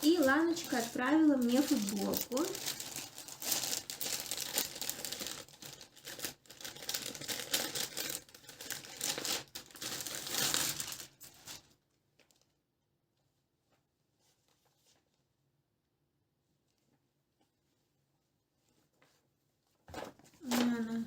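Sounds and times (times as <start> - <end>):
packaging rustling and crinkling: 0.0 - 12.6.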